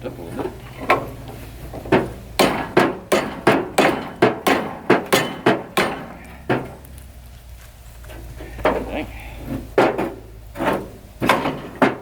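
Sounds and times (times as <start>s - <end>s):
hammer striking metal: 1.9s - 6.8s.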